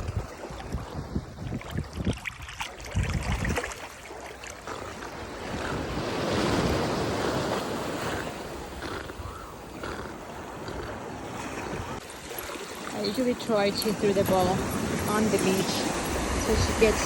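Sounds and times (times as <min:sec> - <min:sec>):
wind buffeting microphone: 0:00.0 - 0:03.9, 0:04.7 - 0:12.0, 0:13.0 - 0:17.0
wave washing up beach: 0:11.1 - 0:17.0.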